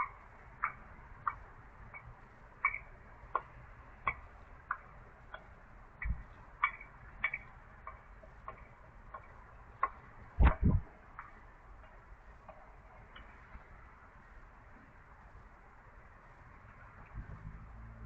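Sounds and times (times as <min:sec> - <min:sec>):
bird tic calls: 0:00.0 - 0:14.3
loud thumps: 0:10.4 - 0:10.9.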